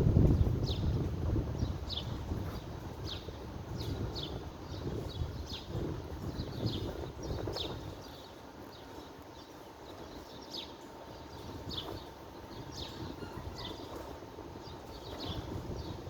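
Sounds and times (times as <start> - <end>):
wind rushing: 0.0 - 8.0
small birds chirping: 0.2 - 16.0.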